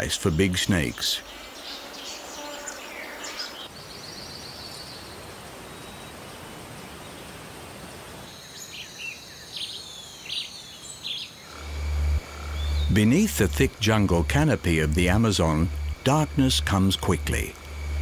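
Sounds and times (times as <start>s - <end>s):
bird calls: 8.3s - 14.1s
steady high buzz: 11.5s - 18.0s
steady hiss: 11.5s - 18.0s.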